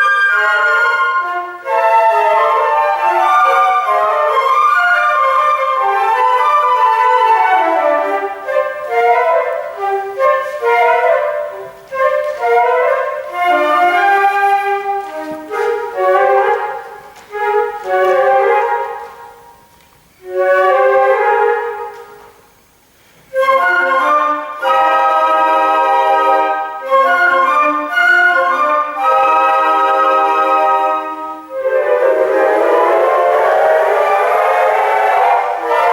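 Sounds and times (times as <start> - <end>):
flute ensemble playing: 0.0 - 22.4, 23.3 - 35.9.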